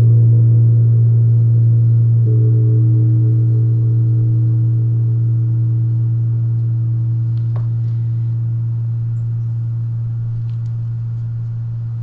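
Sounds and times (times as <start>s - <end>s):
singing bowl ringing: 2.3s - 6.4s
faint tap: 7.4s - 7.8s.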